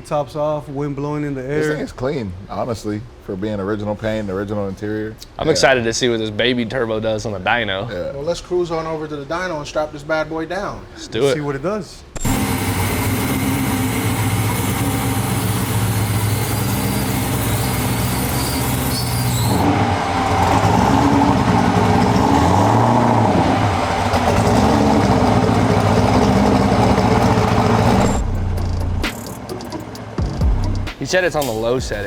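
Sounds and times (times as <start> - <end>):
car engine idling and revving: 12.2 - 31.0.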